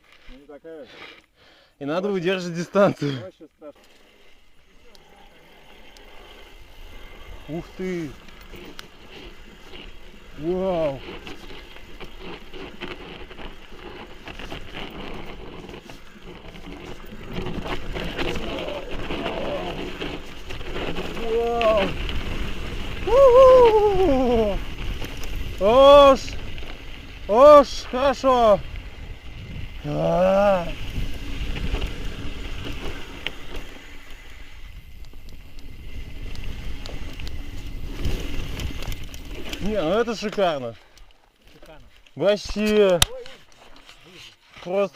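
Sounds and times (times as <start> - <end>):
bike rattling: 2.2 - 44.9
tyres crunching over stones: 5.9 - 44.9
wind rushing over microphone: 16.7 - 39.8
rider whooping shout: 23.0 - 24.7.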